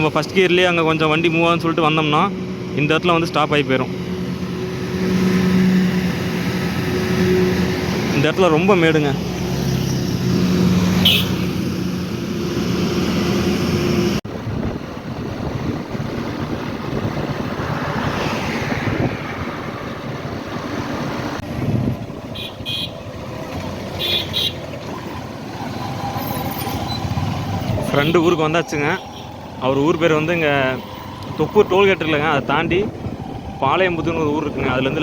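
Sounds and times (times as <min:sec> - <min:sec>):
road and wind noise: 0:00.0 - 0:35.0
truck engine droning: 0:00.0 - 0:35.0
truck horn toots: 0:10.9 - 0:11.6, 0:22.3 - 0:23.0, 0:23.9 - 0:25.0, 0:27.7 - 0:29.4.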